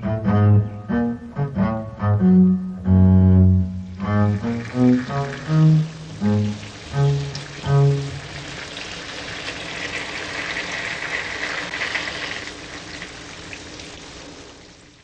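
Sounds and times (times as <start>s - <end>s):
rushing water: 3.7s - 15.0s.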